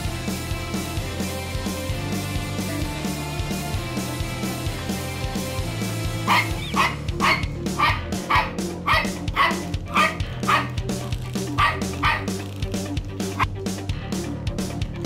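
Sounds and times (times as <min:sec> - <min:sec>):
background music: 0:00.0 - 0:15.0
small dog barking: 0:06.2 - 0:10.8, 0:11.6 - 0:12.3.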